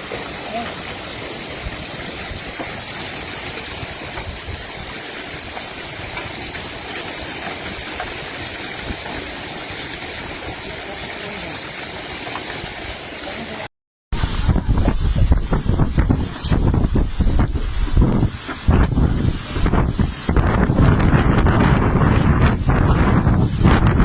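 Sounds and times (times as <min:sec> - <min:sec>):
heavy rain and rushing water: 0:00.0 - 0:24.0
wind buffeting microphone: 0:01.6 - 0:06.7, 0:14.1 - 0:24.0.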